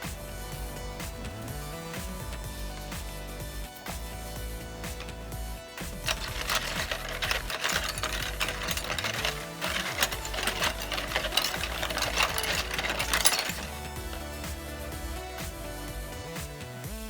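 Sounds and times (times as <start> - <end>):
background music: 0.0 - 17.0
scratchy scraping of metal clips: 5.9 - 14.6.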